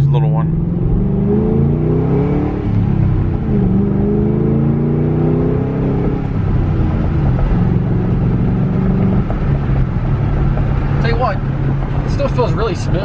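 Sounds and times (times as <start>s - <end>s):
car engine from inside cabin: 0.0s - 13.0s.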